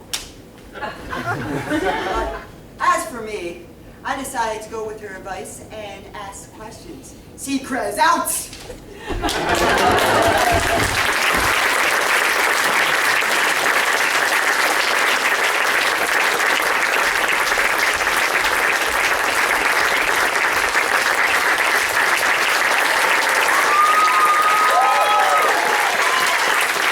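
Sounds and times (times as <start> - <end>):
audience applauding: 0.8 - 2.5, 9.0 - 26.9.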